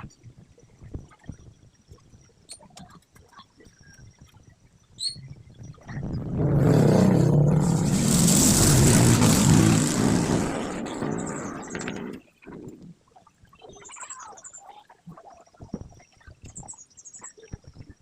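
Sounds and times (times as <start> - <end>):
motor vehicle passing by: 6.2 - 11.7.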